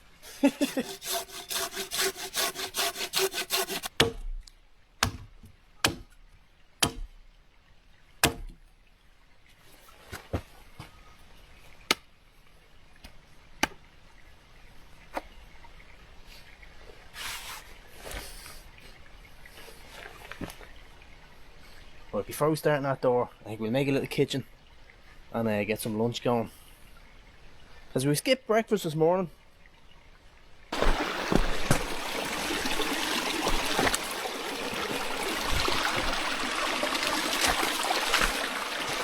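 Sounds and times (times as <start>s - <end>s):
wood being sawn by hand: 0.4s - 4.3s, 5.0s - 6.1s, 6.8s - 7.1s, 8.2s - 8.6s, 30.8s - 39.0s
sharp knocks and clicks: 3.9s - 6.2s, 6.8s - 7.2s, 8.2s - 8.6s.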